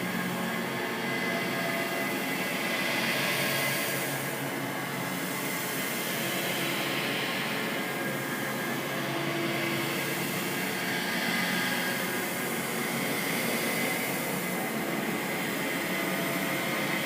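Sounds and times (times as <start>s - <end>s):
spooky hissing drone: 0.0s - 17.0s.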